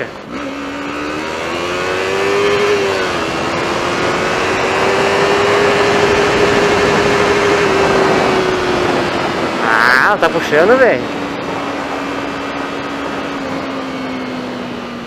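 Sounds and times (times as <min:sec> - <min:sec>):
motorcycle engine accelerating: 0:00.0 - 0:15.0
rush of noise: 0:00.0 - 0:15.0.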